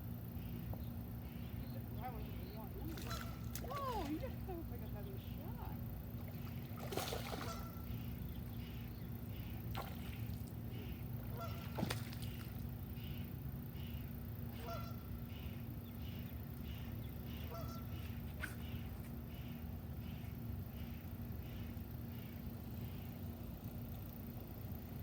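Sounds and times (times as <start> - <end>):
geese honking: 7.3 - 8.1, 10.8 - 11.8, 14.5 - 15.5, 16.7 - 18.8.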